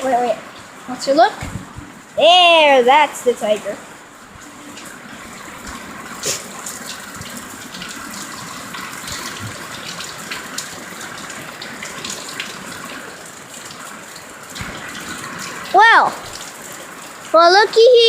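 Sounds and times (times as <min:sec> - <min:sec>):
heavy rain pouring: 0:00.0 - 0:18.0
running water splashing: 0:00.0 - 0:18.0
water drips and splats: 0:00.0 - 0:18.0.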